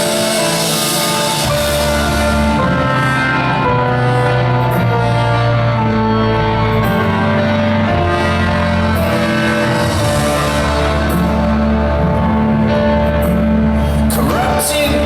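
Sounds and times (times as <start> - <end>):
live rock band instrumental: 0.0 - 15.0.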